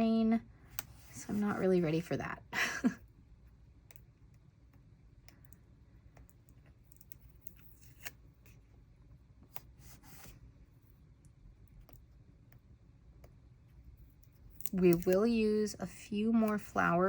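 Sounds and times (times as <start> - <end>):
paper and stickers rustling: 14.1 - 15.6.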